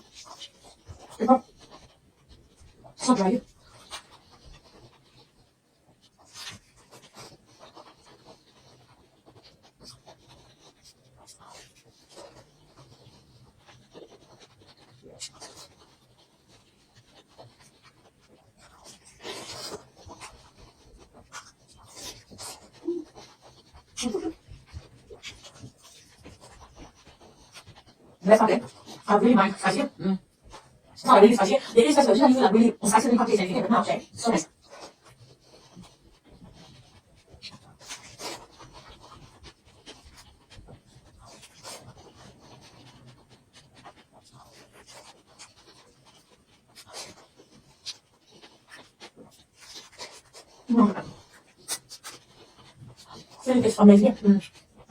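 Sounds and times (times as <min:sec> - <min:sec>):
person chewing with lip-smacking: 0:17.6 - 0:29.1.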